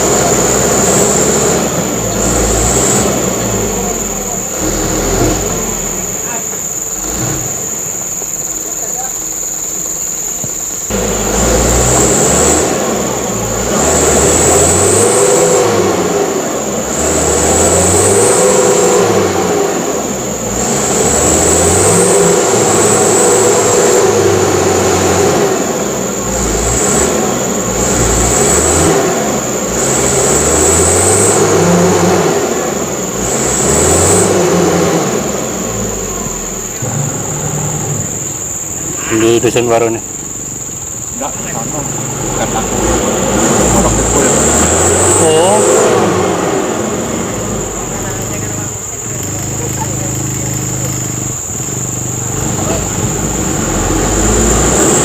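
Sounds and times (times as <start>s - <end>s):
diesel truck engine revving: 0.0s - 55.0s.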